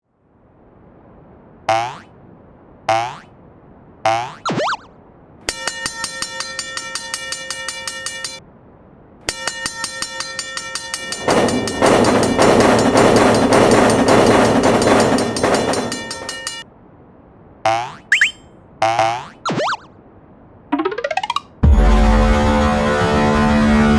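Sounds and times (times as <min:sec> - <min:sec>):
train passing rumble: 0:05.2 - 0:17.6
railroad crossing bell ringing: 0:05.5 - 0:08.4, 0:09.3 - 0:16.7.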